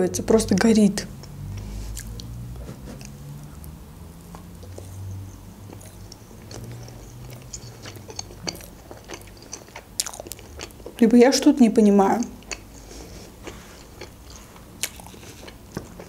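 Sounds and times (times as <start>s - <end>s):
chewing soft marshmallow: 5.7s - 11.0s.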